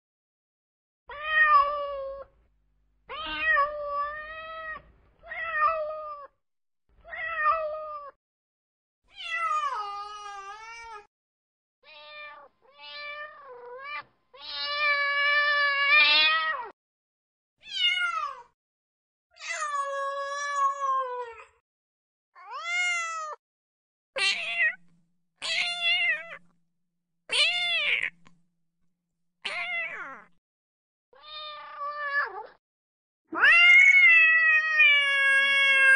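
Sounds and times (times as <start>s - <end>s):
kittens meowing: 27.3s - 28.3s, 29.4s - 30.3s.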